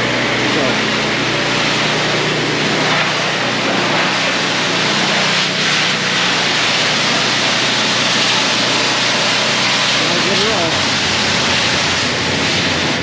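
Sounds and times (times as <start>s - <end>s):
motor humming: 0.0s - 13.0s
pressure washer spraying water: 0.0s - 13.0s.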